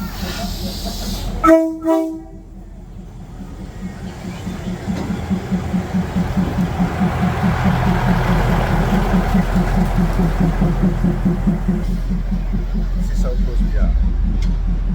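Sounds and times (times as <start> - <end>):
train rolling with pulsing rumble: 0.0 - 14.9
train horn blasts: 1.4 - 2.7, 5.0 - 12.1.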